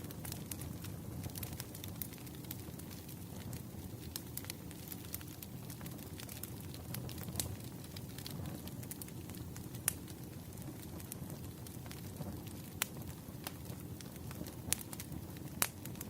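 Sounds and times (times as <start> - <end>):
burning logs rumbling: 0.0 - 16.0
wood fire crackling: 0.0 - 16.0.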